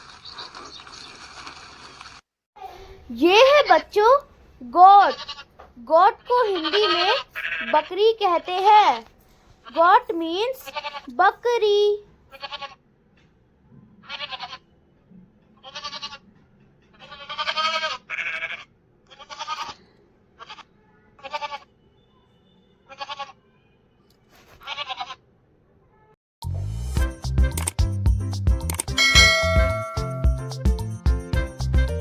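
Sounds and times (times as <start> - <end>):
goat bleating: 5.0 - 5.6, 6.4 - 8.0, 10.7 - 11.1, 12.3 - 12.8, 14.0 - 14.6, 15.6 - 16.2, 17.0 - 19.8, 20.4 - 21.7, 22.9 - 23.4, 24.6 - 25.2.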